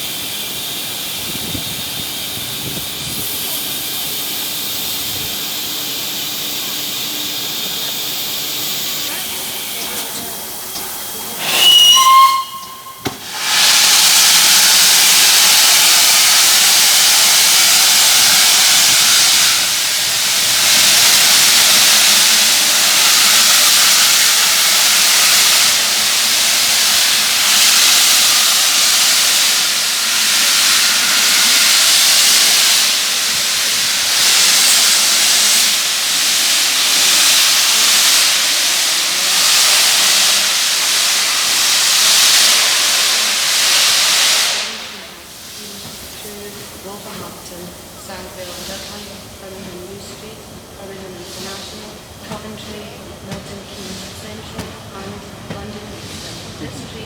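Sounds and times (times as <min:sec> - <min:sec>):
steam hissing: 0:00.0 - 0:57.0
steam locomotive whistle: 0:11.2 - 0:33.4.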